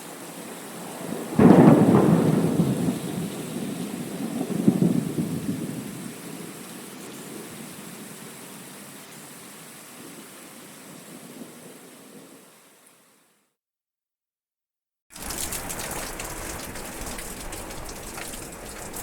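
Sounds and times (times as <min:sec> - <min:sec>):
steady rain: 0:00.0 - 0:13.4, 0:15.1 - 0:19.0
thunder rumbling: 0:01.0 - 0:06.5, 0:15.1 - 0:19.0.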